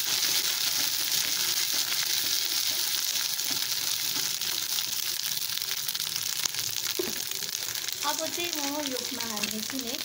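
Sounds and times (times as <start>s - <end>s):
paste sizzling in hot oil: 0.0s - 10.0s.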